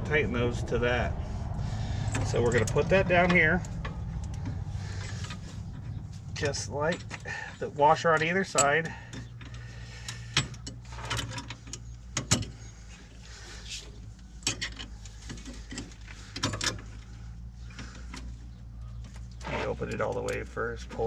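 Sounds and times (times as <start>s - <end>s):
steady low hum: 0.0s - 19.8s
metal parts clicking and knocking: 6.4s - 12.6s, 14.3s - 17.1s.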